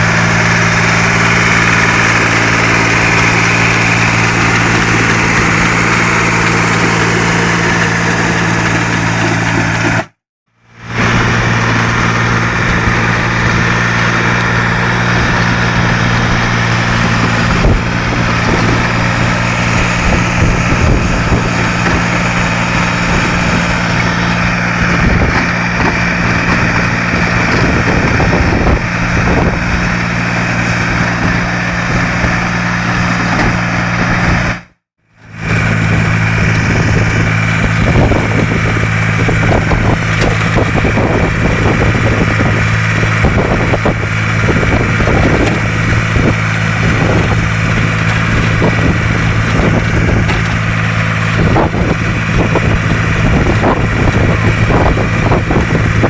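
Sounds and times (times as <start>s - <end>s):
rotovator working soil: 0.0s - 56.0s
tractor engine running: 0.0s - 56.0s
wind buffeting microphone: 11.0s - 34.5s, 35.5s - 56.0s.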